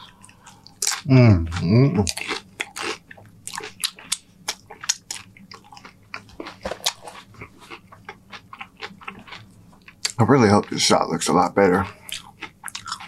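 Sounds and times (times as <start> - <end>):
crunching tortilla chips: 12.1 - 13.0.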